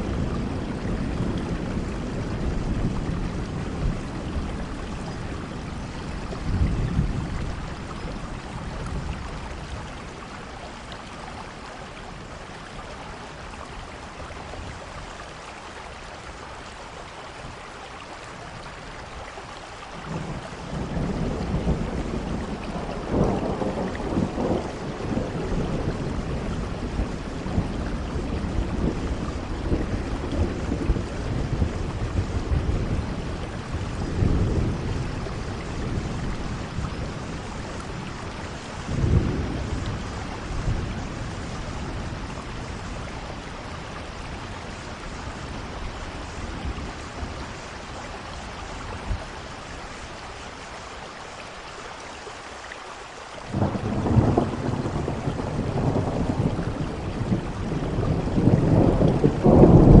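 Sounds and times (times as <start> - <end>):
rolling thunder: 0.0 - 10.3, 20.1 - 48.1, 53.5 - 60.0
steady rainfall: 0.0 - 60.0.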